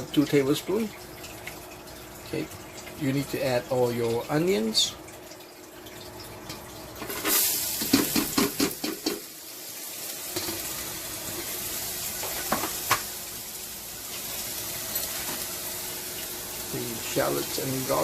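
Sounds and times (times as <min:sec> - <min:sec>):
onions sizzling in oil: 0:06.5 - 0:18.0.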